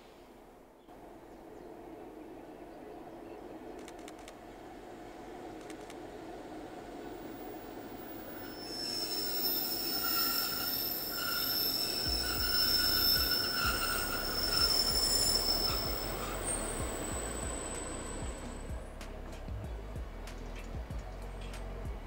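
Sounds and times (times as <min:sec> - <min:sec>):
train wagons passing slowly: 0:00.0 - 0:22.0
locomotive low rumble: 0:00.4 - 0:22.0
high metallic squealing: 0:07.2 - 0:18.7.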